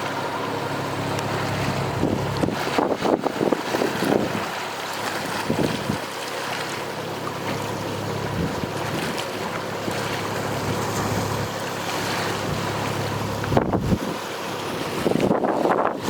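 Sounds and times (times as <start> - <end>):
low hum: 0.0 - 4.4, 7.0 - 15.9
wind buffeting microphone: 1.0 - 4.6, 5.2 - 6.1, 8.2 - 16.0.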